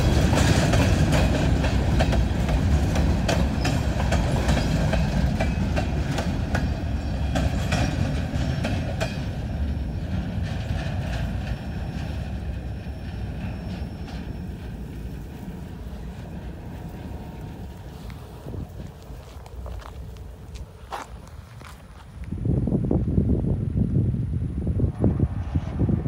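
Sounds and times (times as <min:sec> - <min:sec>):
wheel clacks over rail joints: 0:00.0 - 0:18.3
freight train rumbling past: 0:00.0 - 0:26.0.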